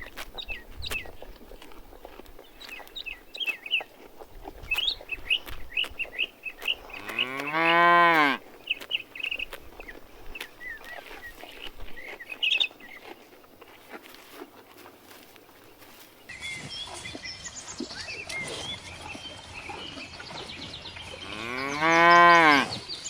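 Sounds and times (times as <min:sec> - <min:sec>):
small birds chirping: 0:00.0 - 0:23.0
cow mooing: 0:06.9 - 0:08.4, 0:21.2 - 0:22.8.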